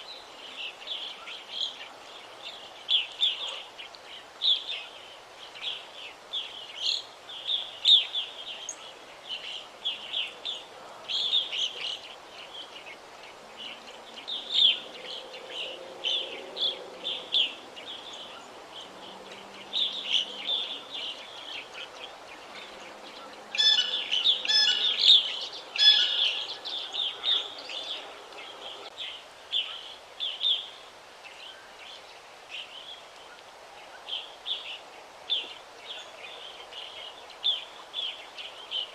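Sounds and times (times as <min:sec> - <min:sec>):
faint background noise: 0:00.0 - 0:38.9
songbirds chirping and singing: 0:09.9 - 0:29.0.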